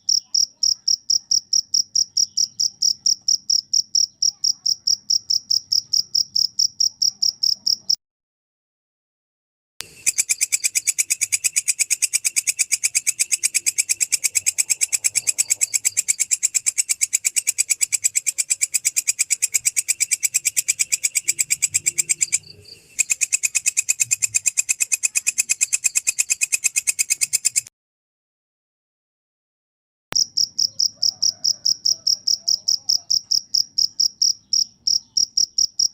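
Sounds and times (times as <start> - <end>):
cricket chirping: 0.0 - 8.0, 9.8 - 27.7, 30.2 - 35.9.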